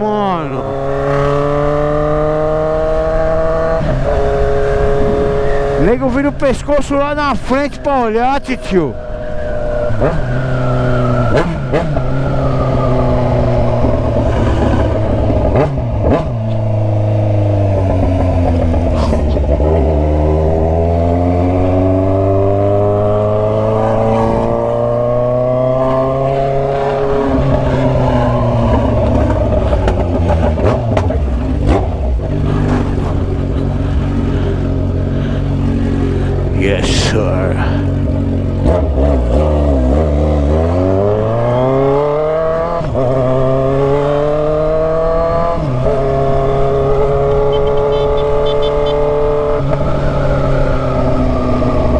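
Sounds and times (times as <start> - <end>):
motorcycle engine accelerating: 0.6 - 5.8.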